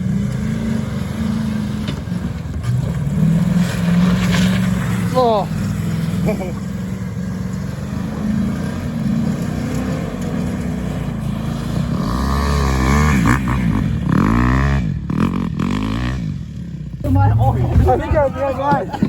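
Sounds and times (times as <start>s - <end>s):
vehicle engine revving: 0.0s - 19.0s.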